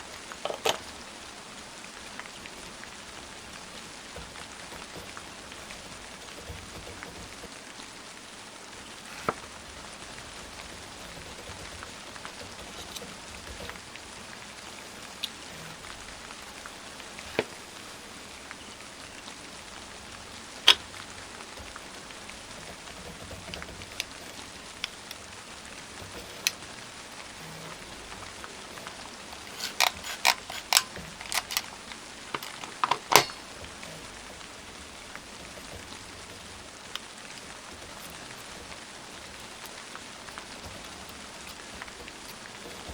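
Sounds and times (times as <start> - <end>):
steady rain: 0.0 - 42.9
clicks of handled plastic parts: 0.3 - 1.0, 10.4 - 13.9, 20.7 - 20.9, 22.6 - 25.2, 26.0 - 26.6, 27.4 - 34.5.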